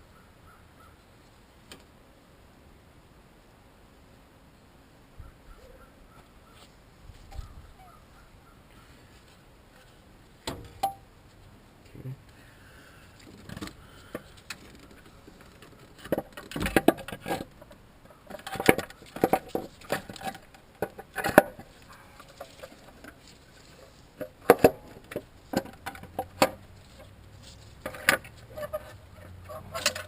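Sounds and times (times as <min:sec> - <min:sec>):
metal tools clinking and knocking: 0:10.6 - 0:11.0.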